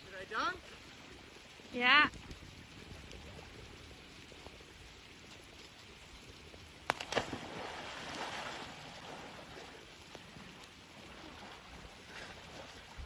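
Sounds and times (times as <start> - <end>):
water swishing: 6.6 - 13.0
paddle splashing into water: 6.9 - 9.8.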